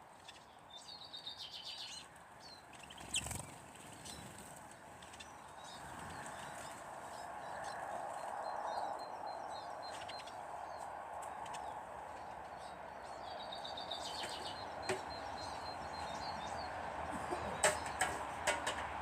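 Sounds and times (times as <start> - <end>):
small birds chirping: 0.1 - 18.8
bird trill: 12.6 - 18.2.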